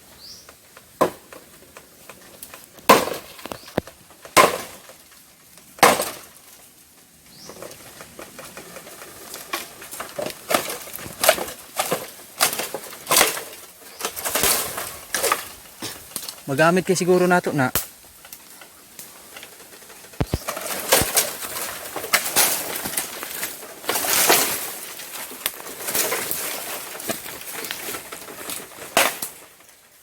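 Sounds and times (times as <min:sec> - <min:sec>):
blade chopping bamboo: 0:02.8 - 0:03.5, 0:04.3 - 0:04.8, 0:05.8 - 0:06.3.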